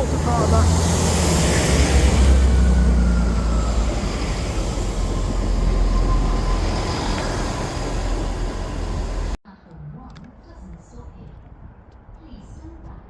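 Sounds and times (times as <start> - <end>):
train rumbling past: 0.0 - 9.4.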